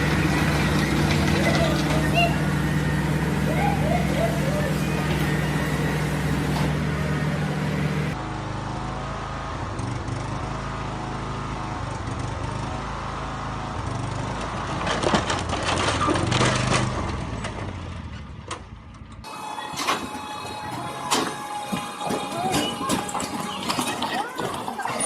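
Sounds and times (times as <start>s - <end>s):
knocks and rattling: 0.0s - 7.0s, 14.4s - 25.0s
vehicle engine running: 0.0s - 25.0s.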